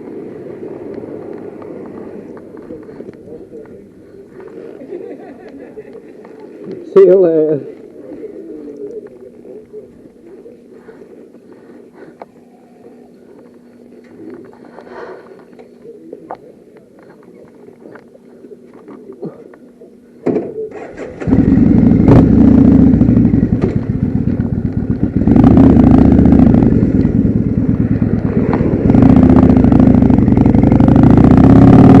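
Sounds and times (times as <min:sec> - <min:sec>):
motorcycle engine running: 0:20.7 - 0:32.0.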